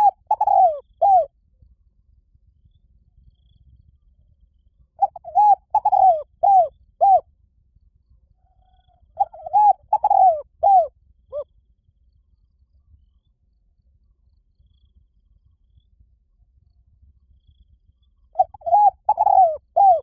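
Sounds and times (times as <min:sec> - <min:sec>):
dove cooing: 0:00.0 - 0:01.3, 0:05.0 - 0:07.2, 0:08.7 - 0:11.4, 0:18.4 - 0:20.0.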